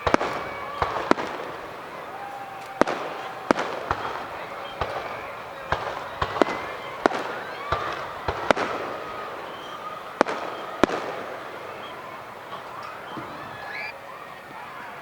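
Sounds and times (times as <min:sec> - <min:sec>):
fireworks bangs: 0:00.0 - 0:15.0
fireworks crackle: 0:00.0 - 0:15.0.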